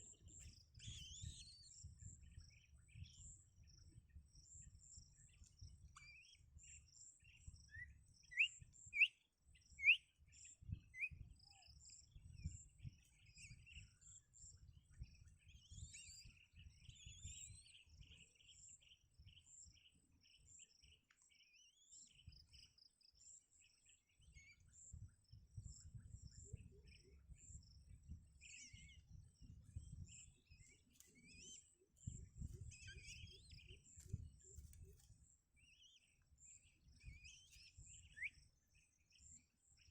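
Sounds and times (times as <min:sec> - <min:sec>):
birds chirping: 0:23.6 - 0:39.9.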